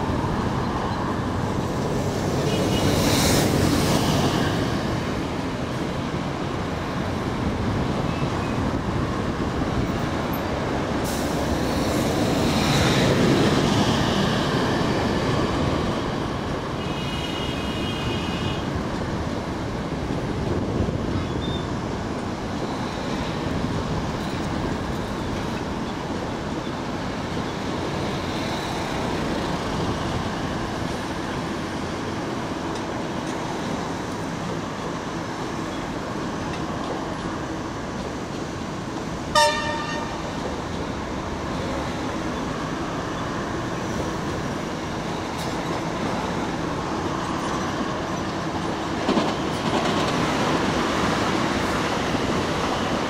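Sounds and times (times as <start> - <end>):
train rumbling over tracks: 0.0 - 53.0
train horn blast: 39.3 - 40.3.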